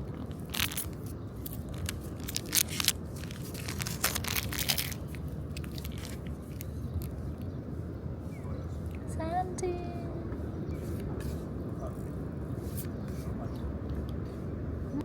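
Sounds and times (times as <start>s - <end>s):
low hum: 0.0s - 15.0s
packaging crinkling: 0.1s - 7.2s.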